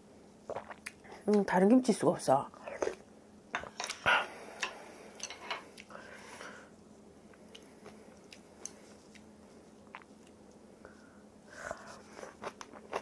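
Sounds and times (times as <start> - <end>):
person chewing and biting food: 11.7 - 13.0.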